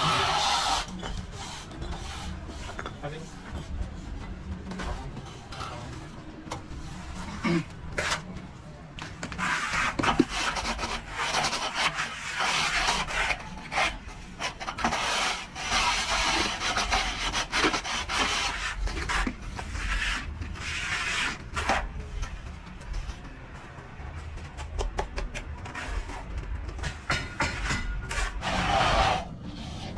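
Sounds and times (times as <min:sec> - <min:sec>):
plastering tool scraping plaster: 0:00.0 - 0:03.4, 0:06.8 - 0:08.4, 0:09.2 - 0:22.0, 0:25.6 - 0:29.9.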